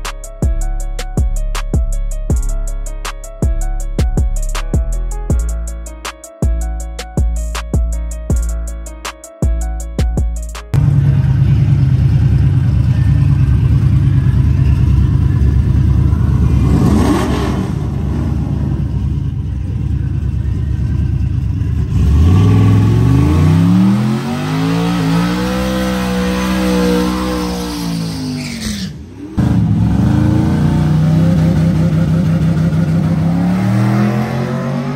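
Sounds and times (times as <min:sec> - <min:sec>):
vehicle engine rumbling and revving: 0:10.7 - 0:34.9.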